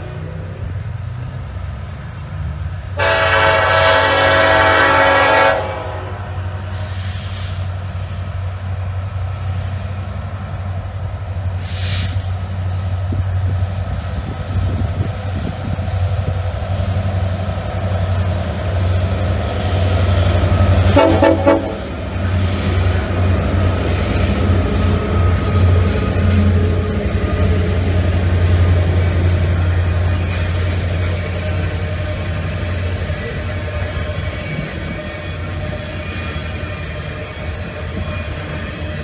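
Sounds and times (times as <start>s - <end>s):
diesel engines droning: 0.0s - 39.0s
locomotive air horn: 3.0s - 6.2s, 20.8s - 21.9s.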